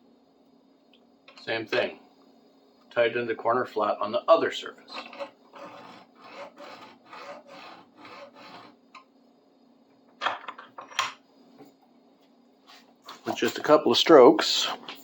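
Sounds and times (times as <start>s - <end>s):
steady low hum: 0.0s - 10.2s
hand file scraping metal: 4.9s - 8.8s.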